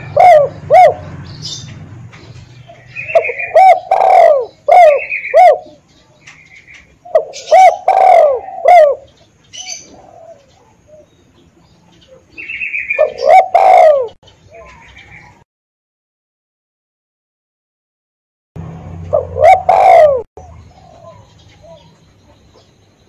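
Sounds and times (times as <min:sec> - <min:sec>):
dove cooing: 0:00.0 - 0:01.7, 0:02.6 - 0:15.4, 0:19.0 - 0:22.7.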